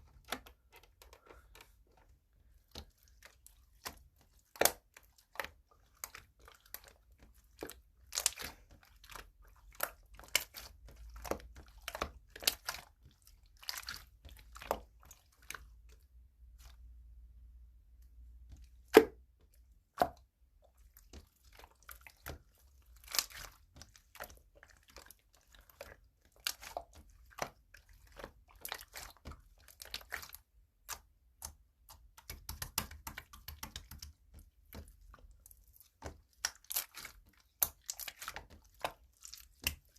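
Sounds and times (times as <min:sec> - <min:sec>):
slime popping and crackling: 0:21.0 - 0:39.9.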